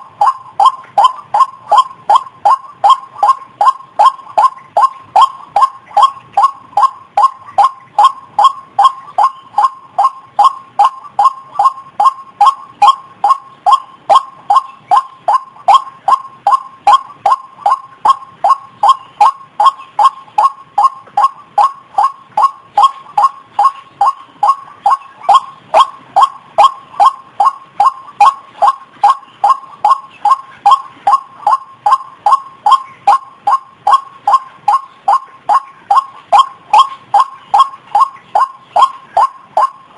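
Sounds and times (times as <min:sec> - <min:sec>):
bird calling repeated notes: 0:00.0 - 0:39.9.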